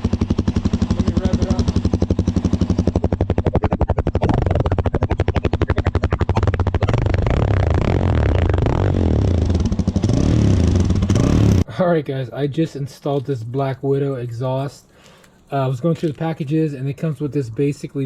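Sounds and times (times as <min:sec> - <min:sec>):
motorcycle engine idling and revving: 0:00.0 - 0:11.7.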